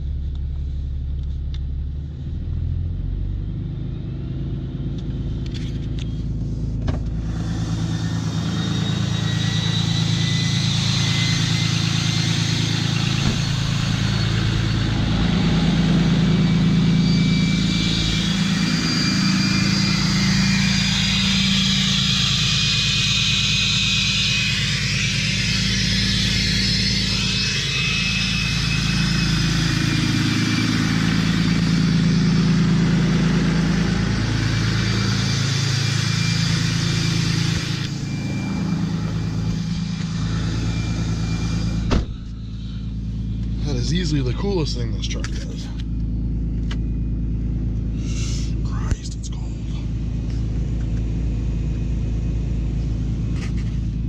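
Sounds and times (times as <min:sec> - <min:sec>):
diesel engine drone: 0:00.0 - 0:54.0
high turbo whistle: 0:06.0 - 0:45.1.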